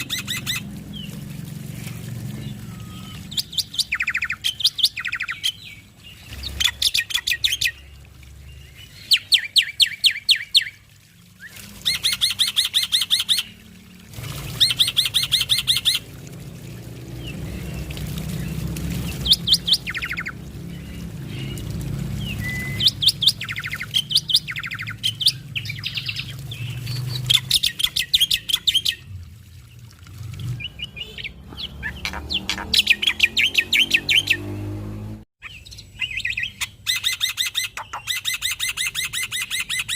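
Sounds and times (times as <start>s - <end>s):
starling singing: 0.0s - 1.2s, 2.4s - 7.9s, 17.3s - 29.1s, 30.6s - 34.5s.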